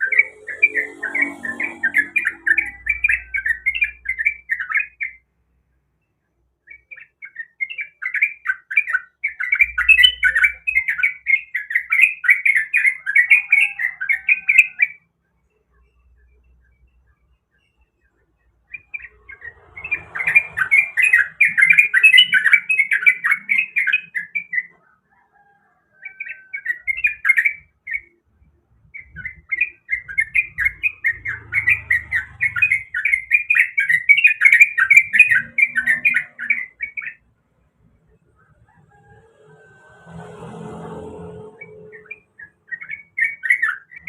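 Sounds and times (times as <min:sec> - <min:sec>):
bulbul singing chattering phrases: 0:00.0 - 0:05.2.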